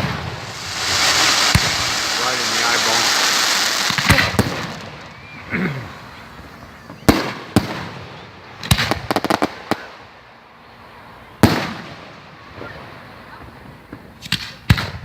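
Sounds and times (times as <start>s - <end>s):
fireworks crackling pops: 0.0s - 5.4s, 6.9s - 10.0s, 11.4s - 12.8s, 13.4s - 15.0s
fireworks booming: 0.0s - 9.9s, 11.4s - 12.7s.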